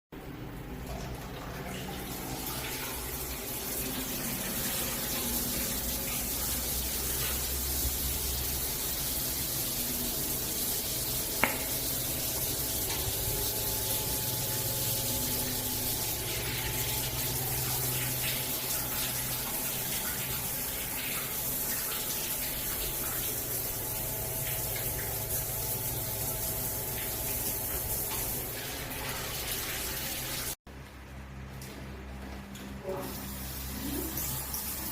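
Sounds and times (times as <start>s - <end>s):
water running from tap: 0.6s - 30.6s, 32.9s - 34.9s.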